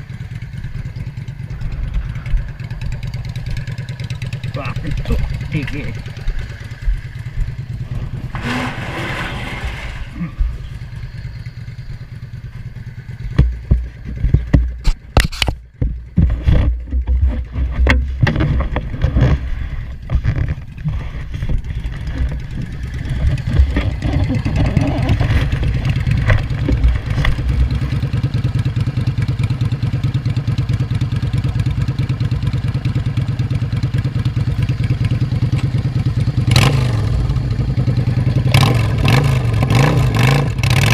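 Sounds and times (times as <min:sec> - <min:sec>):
engine running: 0:00.0 - 0:40.9
irregular knocks and clatter: 0:13.1 - 0:28.5.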